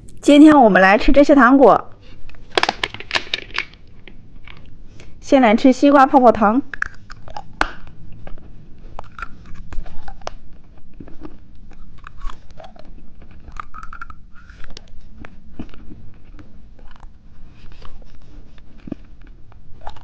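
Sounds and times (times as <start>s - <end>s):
person chewing gum: 0.0s - 0.4s, 6.7s - 20.0s.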